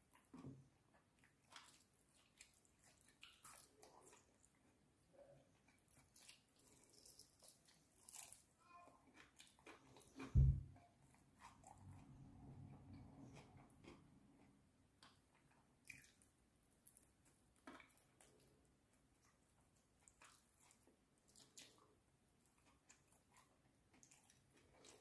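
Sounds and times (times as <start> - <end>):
moist chewing: 0.1 - 4.8, 5.4 - 8.5, 9.1 - 25.0
dull low thump: 10.4 - 10.8.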